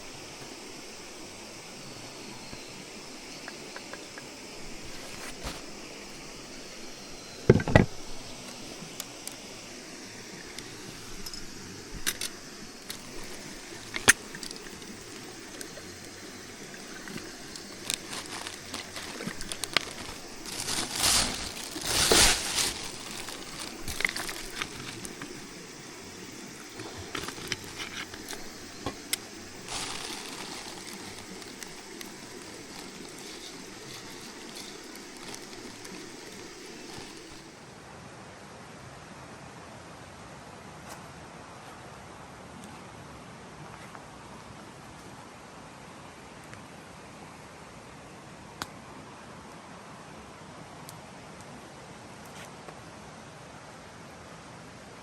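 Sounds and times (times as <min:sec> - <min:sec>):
running water: 0:00.0 - 0:37.6.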